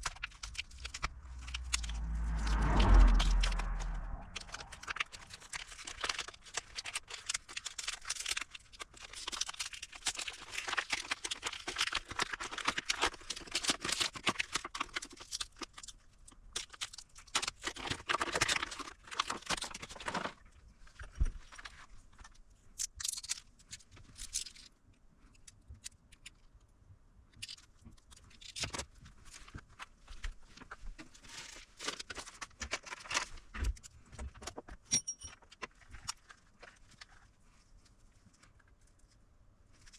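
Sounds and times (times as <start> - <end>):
scraping and crackling handling noise: 27.4 - 39.9.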